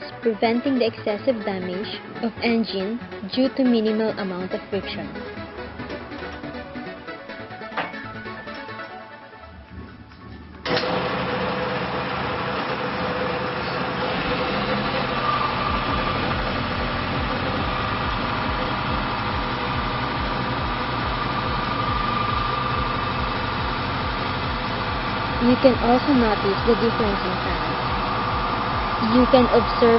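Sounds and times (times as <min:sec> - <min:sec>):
low pulsing: 0:09.6 - 0:29.9
friction test machine humming: 0:09.7 - 0:29.9.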